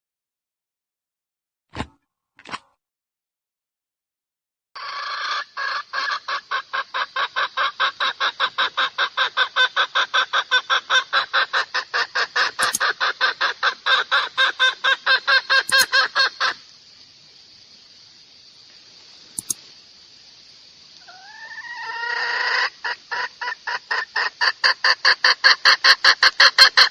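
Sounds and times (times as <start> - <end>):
hen clucking: 4.8 - 16.6, 21.0 - 26.9.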